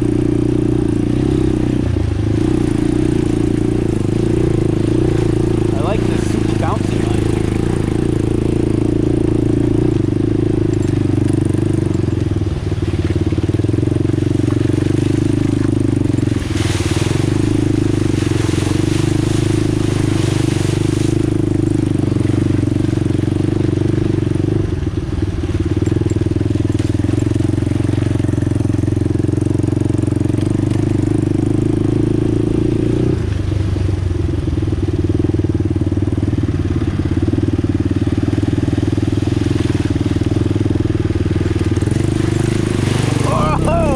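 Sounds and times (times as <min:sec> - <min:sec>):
atv engine running: 0:00.0 - 0:43.9.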